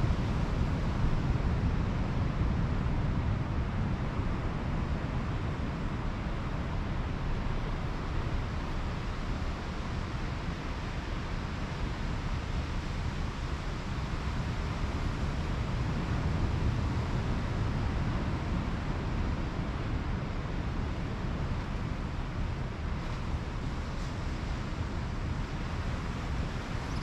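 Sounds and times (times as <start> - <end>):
ocean surf washing on beach: 11.8 - 27.0.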